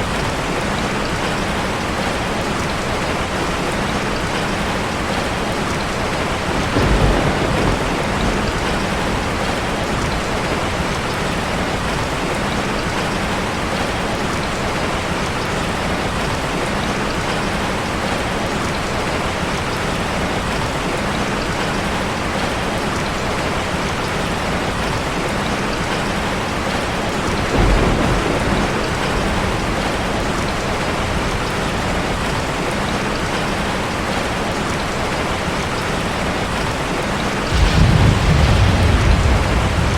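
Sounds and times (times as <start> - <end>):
heavy rain on car roof: 0.0 - 39.9
low rumbles of thunder: 6.0 - 12.0, 26.6 - 33.0, 37.4 - 39.9.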